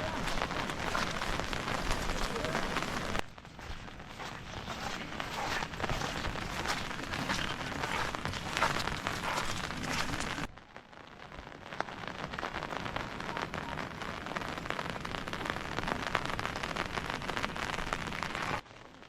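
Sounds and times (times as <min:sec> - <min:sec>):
raindrops ticking: 0:00.0 - 0:10.5
rain falling: 0:00.0 - 0:19.0.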